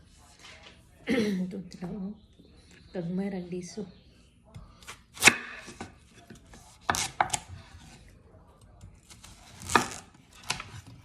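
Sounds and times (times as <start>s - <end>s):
knife chopping watermelon: 4.6s - 8.0s, 8.8s - 11.0s
knife scraping on board: 4.8s - 8.0s.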